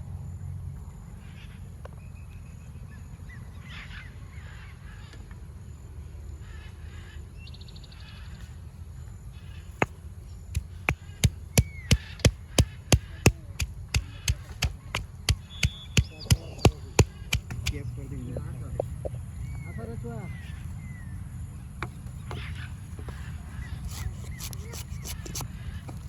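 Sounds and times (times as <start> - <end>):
birds cawing: 10.6 - 17.8
knife chopping on a board: 10.6 - 17.8.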